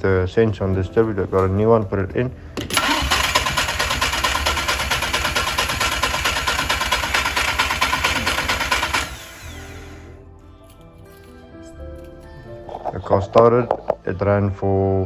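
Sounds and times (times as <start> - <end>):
soft music: 0.0 - 2.8, 8.4 - 15.0.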